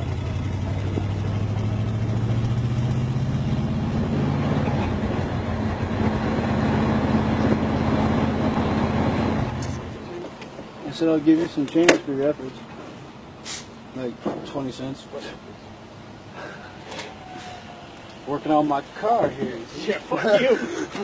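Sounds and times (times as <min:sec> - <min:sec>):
pickup truck engine running: 0:00.0 - 0:10.0.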